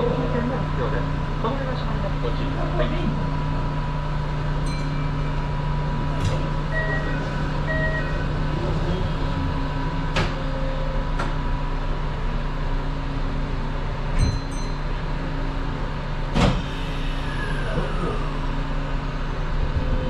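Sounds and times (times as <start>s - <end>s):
electric train hum: 0.0s - 20.0s
short beeps: 6.7s - 8.5s.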